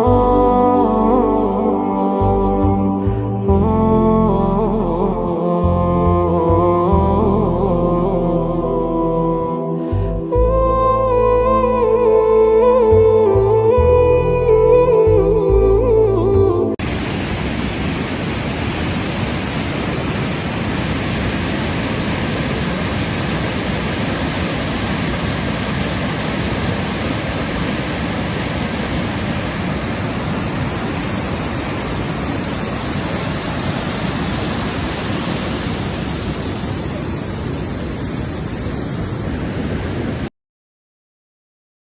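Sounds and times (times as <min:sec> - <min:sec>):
steady rushing noise: 0:16.8 - 0:40.3.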